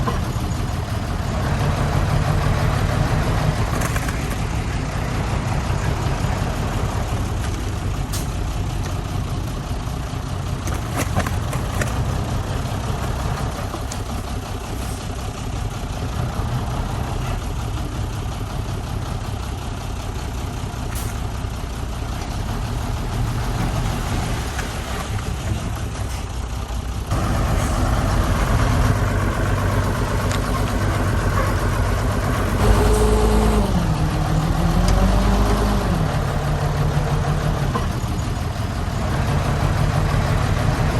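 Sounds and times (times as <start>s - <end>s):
heavy diesel machinery engines: 0.0s - 40.9s
loud engine pitch dipping: 27.1s - 40.9s.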